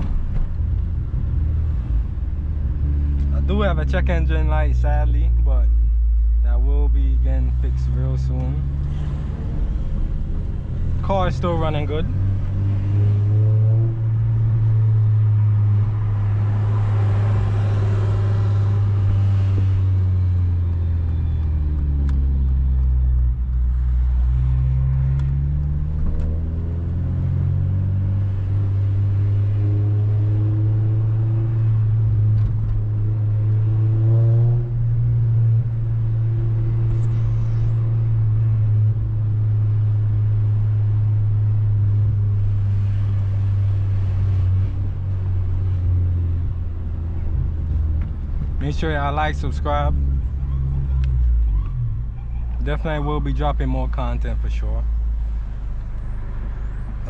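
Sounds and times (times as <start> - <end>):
car engine running: 0.0 - 33.8.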